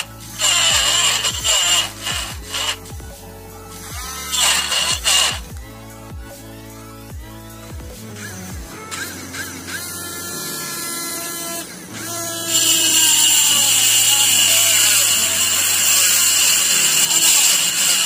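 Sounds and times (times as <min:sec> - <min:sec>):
disc grinding plastic pipe: 0:00.0 - 0:02.9, 0:04.1 - 0:05.6, 0:08.3 - 0:18.0
small motor whining: 0:00.0 - 0:18.0.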